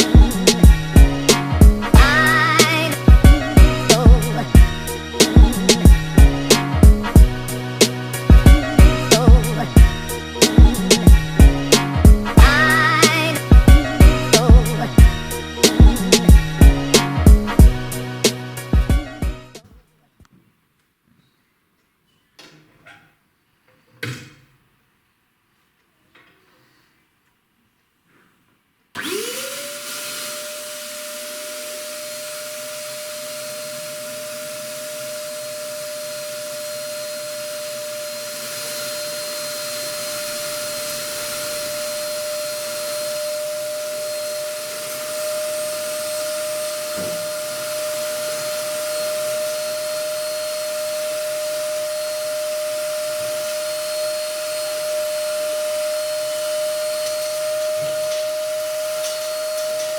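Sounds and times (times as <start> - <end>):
vacuum cleaner motor whining: 29.0 - 59.9.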